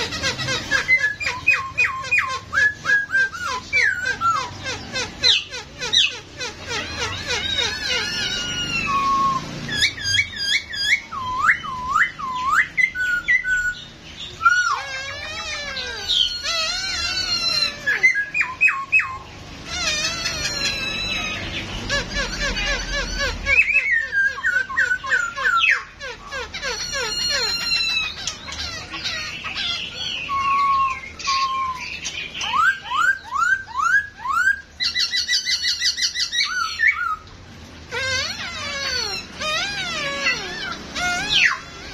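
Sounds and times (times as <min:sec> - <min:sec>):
bird singing whistled notes: 0:00.7 - 0:04.5, 0:07.0 - 0:14.8, 0:15.9 - 0:19.3, 0:26.6 - 0:37.2.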